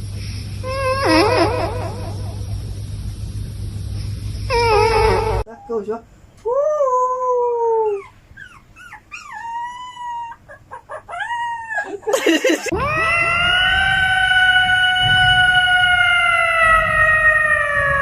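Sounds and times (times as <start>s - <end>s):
dog howling: 4.5s - 5.5s, 6.5s - 12.1s, 12.7s - 18.0s.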